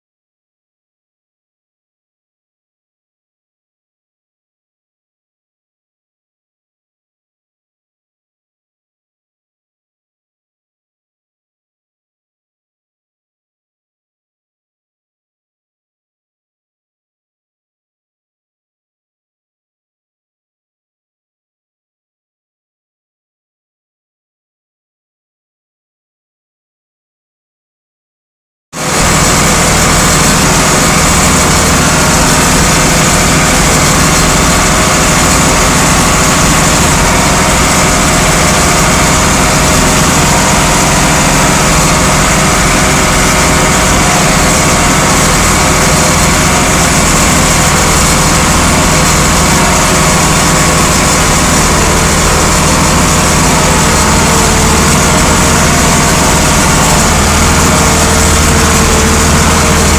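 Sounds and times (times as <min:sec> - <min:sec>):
tractor engine running: 0:28.8 - 0:59.9.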